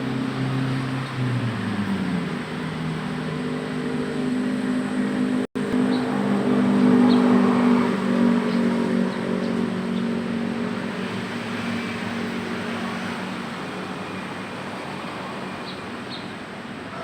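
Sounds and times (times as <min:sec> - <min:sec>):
small birds chirping: 0:07.0 - 0:07.4, 0:15.6 - 0:16.4.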